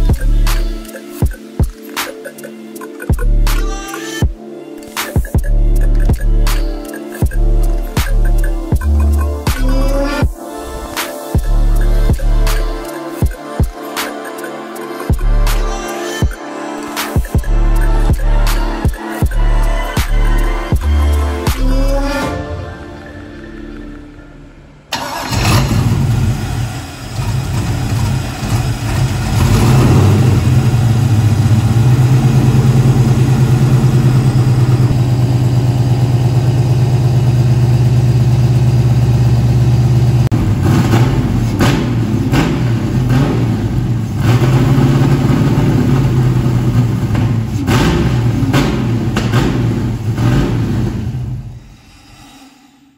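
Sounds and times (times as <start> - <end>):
car engine starting and idling: 23.8 - 51.6
engine revving: 24.9 - 51.6.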